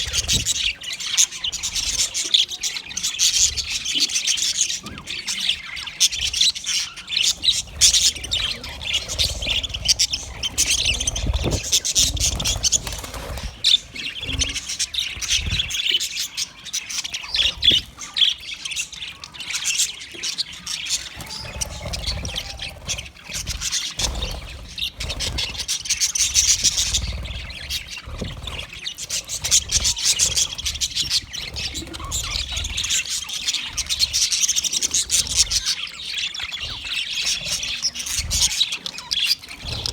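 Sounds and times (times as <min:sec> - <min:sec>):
budgerigars chattering and chirping: 0:00.0 - 0:39.9
low rumbles: 0:07.3 - 0:15.7.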